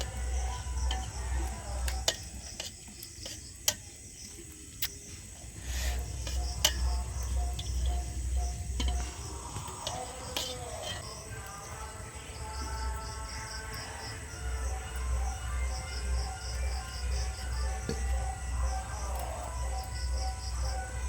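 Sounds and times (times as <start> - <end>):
music with pulsing beat: 5.6 - 10.5.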